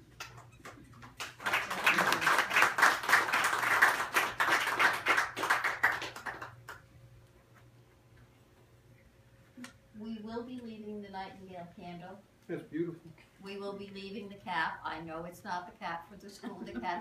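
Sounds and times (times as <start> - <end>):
group clapping: 0.1 - 6.9.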